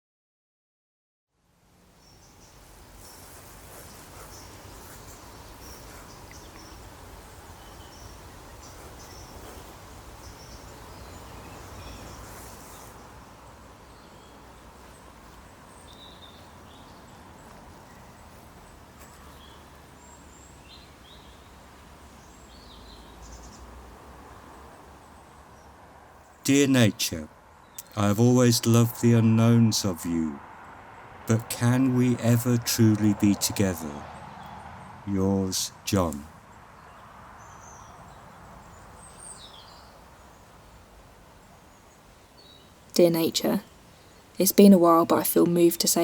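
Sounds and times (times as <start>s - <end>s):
faint bird chirps: 2.0s - 23.7s.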